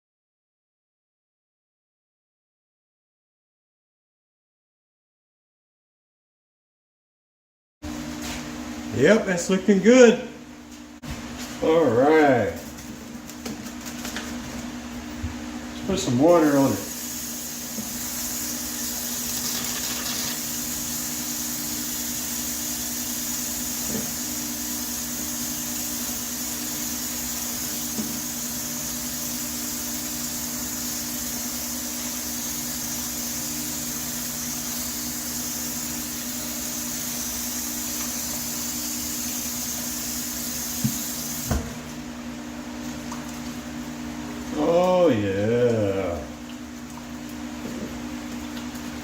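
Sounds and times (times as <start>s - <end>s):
water spraying onto metal vent: 16.3s - 41.6s.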